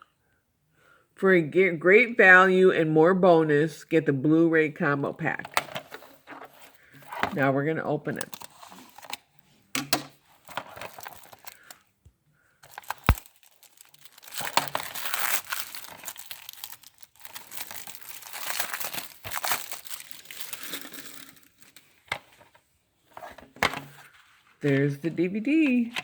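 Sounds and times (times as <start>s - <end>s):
plastic wrapping crinkling: 10.3s - 11.8s, 12.6s - 23.2s.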